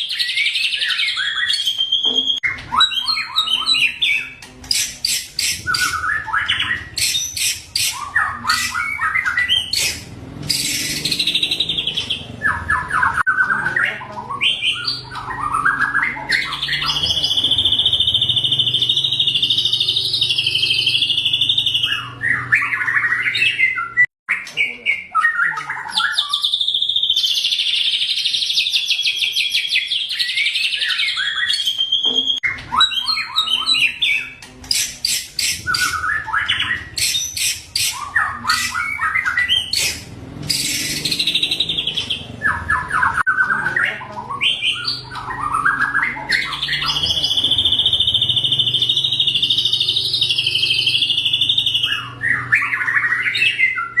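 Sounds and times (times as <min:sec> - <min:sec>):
sharp repeated bird notes: 0:00.0 - 0:54.0
songbird trilling: 0:24.6 - 0:54.0.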